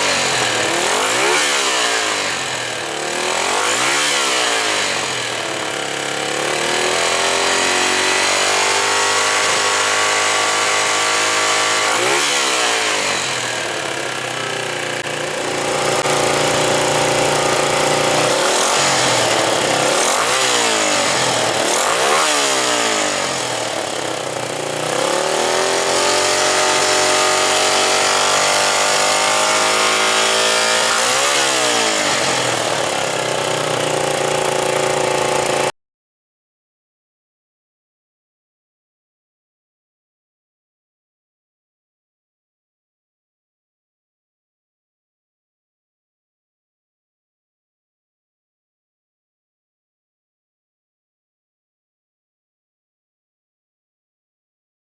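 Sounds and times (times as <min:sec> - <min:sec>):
motorcycle engine revving: 0:00.0 - 0:35.7.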